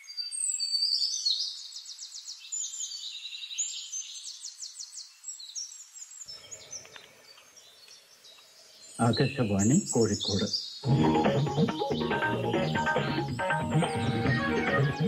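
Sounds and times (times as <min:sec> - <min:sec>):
songbird trilling and whistling: 0:00.0 - 0:05.8.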